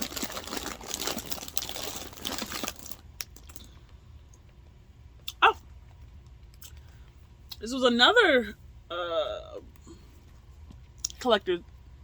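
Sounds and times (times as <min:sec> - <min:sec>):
packaging crinkling and crackling: 0:00.0 - 0:03.7.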